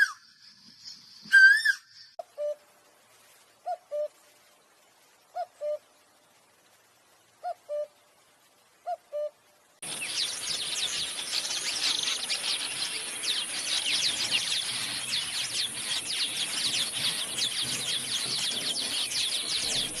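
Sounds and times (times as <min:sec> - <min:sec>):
small birds chirping: 0:09.8 - 0:20.0.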